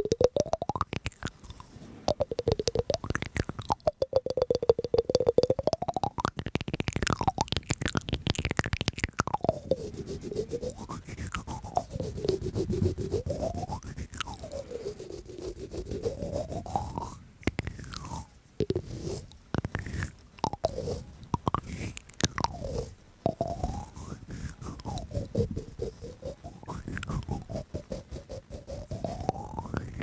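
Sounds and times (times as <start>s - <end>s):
crunchy chewing: 0.2s - 30.0s
swooping tone: 9.3s - 17.2s, 22.4s - 30.0s.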